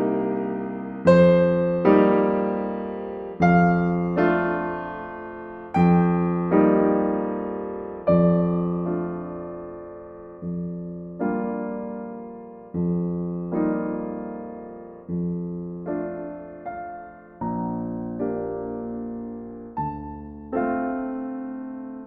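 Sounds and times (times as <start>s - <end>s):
gentle solo piano: 0.0s - 22.0s.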